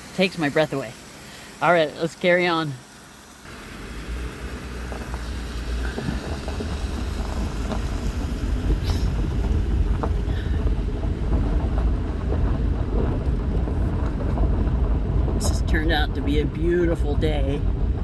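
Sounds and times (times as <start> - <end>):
vehicle engine and tyres rumbling: 0.0 - 18.0
knocks from road bumps: 4.2 - 18.0.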